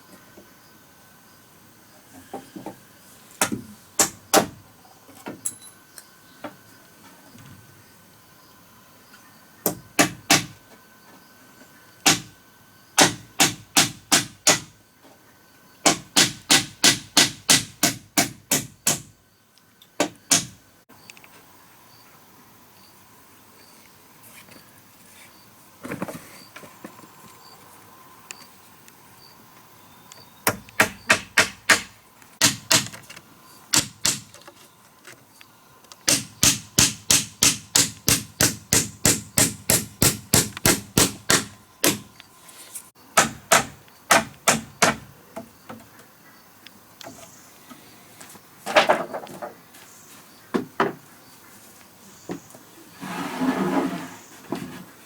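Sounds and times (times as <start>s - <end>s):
hammer striking wood: 3.4s - 4.6s, 9.7s - 10.6s, 12.0s - 12.3s, 13.0s - 14.8s, 15.8s - 19.1s, 20.0s - 20.6s, 30.5s - 33.0s, 33.8s - 34.4s, 36.1s - 42.1s, 43.2s - 45.5s.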